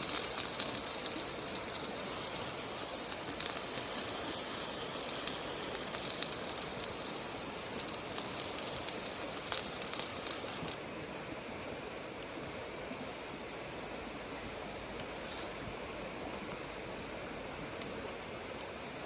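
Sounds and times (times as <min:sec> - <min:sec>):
wood fire crackling and popping: 0:00.0 - 0:10.8.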